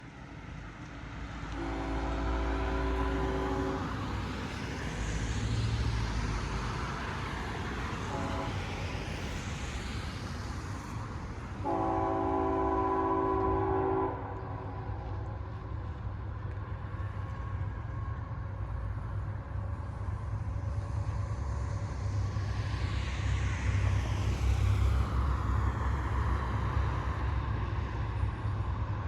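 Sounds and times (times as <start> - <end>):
locomotive air horn: 1.6 - 4.0, 8.1 - 8.6, 11.6 - 15.0.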